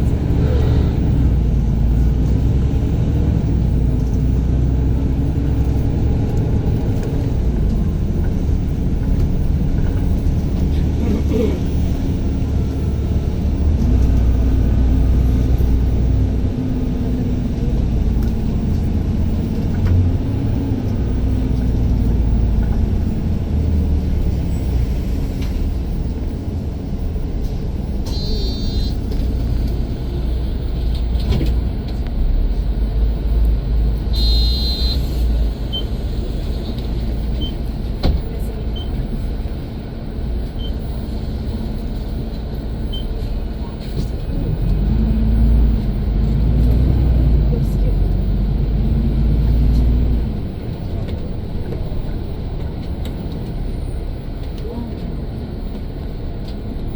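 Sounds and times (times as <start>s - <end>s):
vehicle engines rumbling: 0.0s - 56.9s
short electronic beeps: 27.1s - 29.1s, 34.1s - 37.7s.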